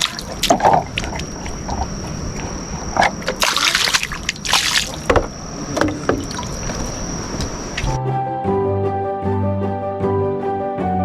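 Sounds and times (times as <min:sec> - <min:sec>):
water splashing and sloshing: 0:00.0 - 0:08.0.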